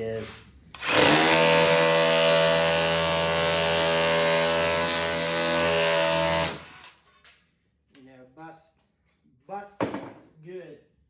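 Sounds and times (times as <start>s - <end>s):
hammer drill hammering into brick: 0.8s - 7.0s.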